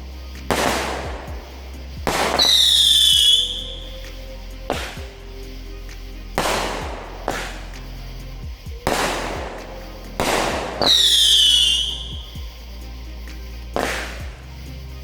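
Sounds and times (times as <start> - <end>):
background music: 0.0 - 15.0
firework shots bursting: 0.0 - 15.0
falling firework whistle: 0.4 - 5.2, 8.8 - 12.6, 13.8 - 14.3.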